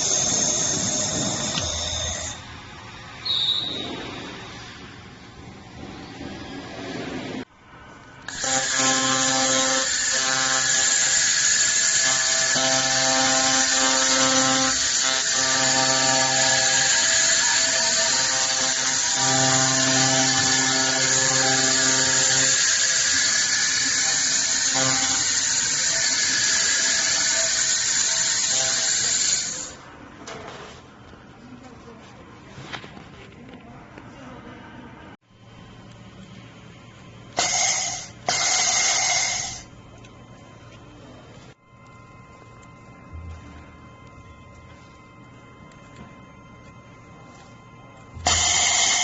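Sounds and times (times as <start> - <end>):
laser welder hissing: 0.0 - 2.5, 8.3 - 29.8, 37.4 - 39.7, 48.2 - 49.0
pitched buzz: 0.0 - 3.9, 8.2 - 29.8, 37.3 - 39.9, 41.5 - 49.0.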